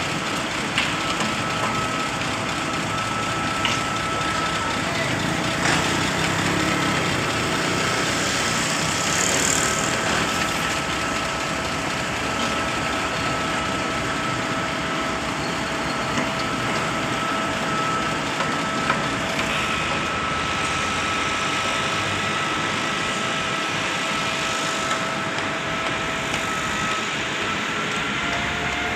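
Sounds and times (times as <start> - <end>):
concrete pump engine running: 0.0 - 28.9
high whine: 0.0 - 28.9.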